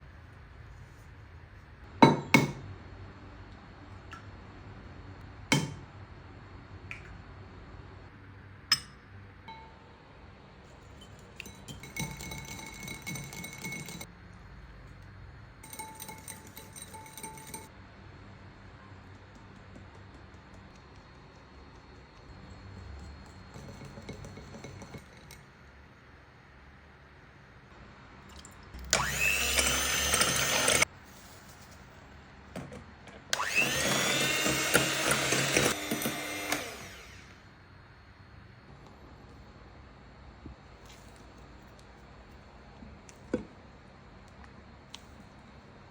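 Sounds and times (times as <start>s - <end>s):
utensil clinking against glass bowl: 10.9s - 14.1s, 15.6s - 17.7s, 22.4s - 25.4s
kitchen appliance motor whining: 28.9s - 30.9s, 33.3s - 37.4s.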